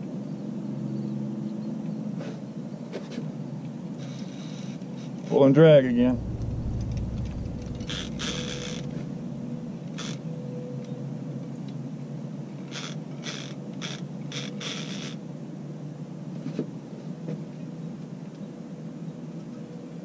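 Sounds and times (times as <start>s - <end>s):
fishing reel drag buzzing: 6.7s - 9.1s.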